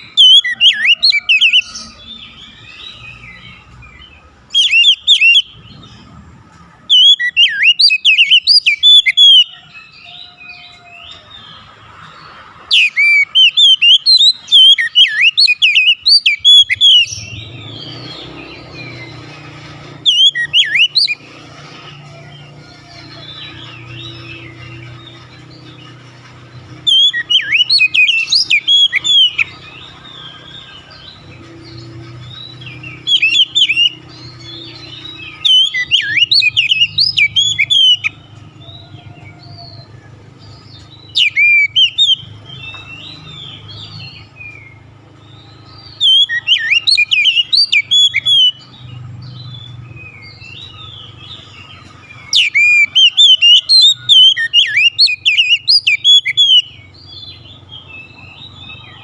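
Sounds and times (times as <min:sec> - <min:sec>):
bird singing whistled phrases: 0:00.0 - 0:03.5, 0:04.5 - 0:05.6, 0:06.9 - 0:10.8, 0:12.7 - 0:19.2, 0:19.9 - 0:21.2, 0:26.8 - 0:38.2, 0:41.0 - 0:44.7, 0:45.5 - 0:49.0, 0:52.2 - 0:59.0.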